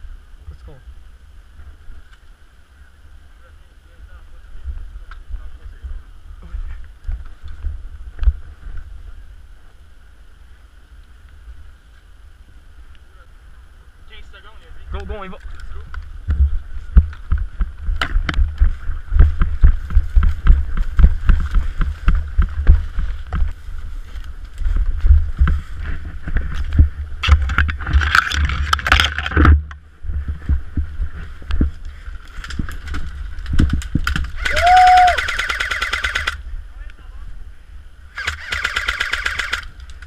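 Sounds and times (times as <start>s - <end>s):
rustling: 14.3s - 36.4s
footsteps: 15.4s - 34.4s.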